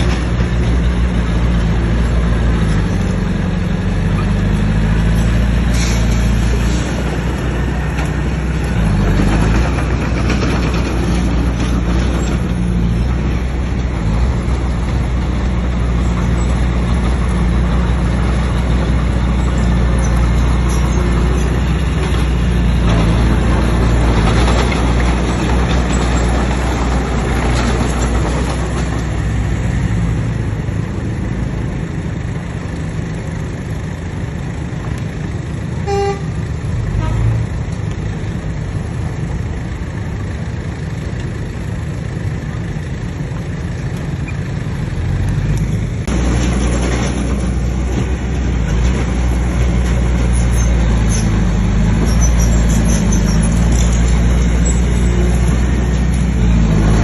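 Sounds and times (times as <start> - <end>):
diesel engine under load: 0.0 - 57.0
short horn toot: 35.9 - 36.3.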